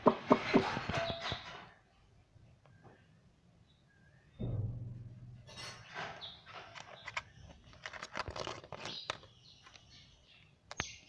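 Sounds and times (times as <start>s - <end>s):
low thump: 4.4s - 6.1s.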